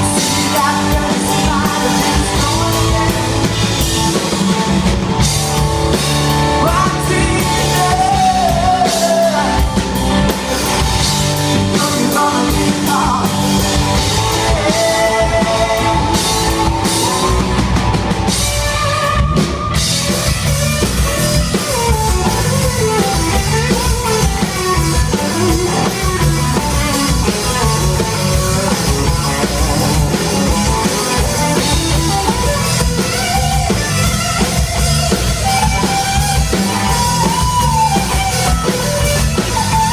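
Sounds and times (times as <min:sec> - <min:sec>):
person singing: 0:00.0 - 0:04.1, 0:06.4 - 0:10.9, 0:11.5 - 0:17.8
bass guitar: 0:00.0 - 0:39.9
drum kit: 0:00.0 - 0:39.9
electric guitars: 0:00.0 - 0:39.9.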